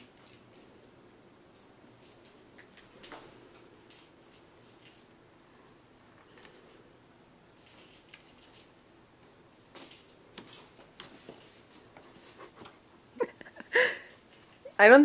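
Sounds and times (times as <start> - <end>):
light rustling and tapping: 7.6 - 13.6.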